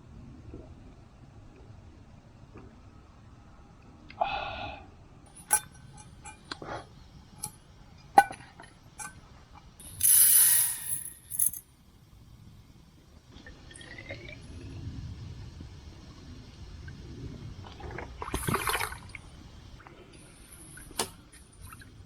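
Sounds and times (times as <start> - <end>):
metal cookware clinking: 5.3 - 6.5.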